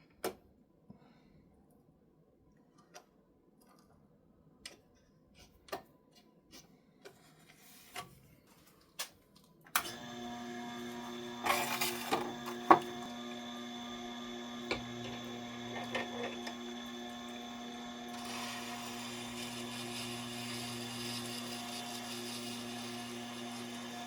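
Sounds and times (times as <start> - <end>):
sharpener motor humming: 9.8 - 24.0.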